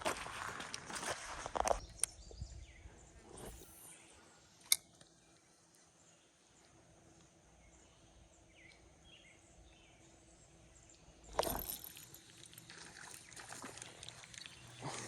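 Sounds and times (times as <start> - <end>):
faint chirps: 1.7 - 12.1
quiet stream: 3.1 - 15.0
water sloshing from wading: 11.3 - 15.0
splash: 11.4 - 15.0.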